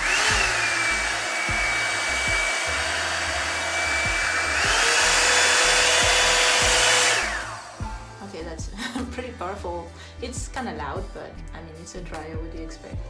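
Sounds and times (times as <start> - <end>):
blow dryer running: 0.0 - 8.3.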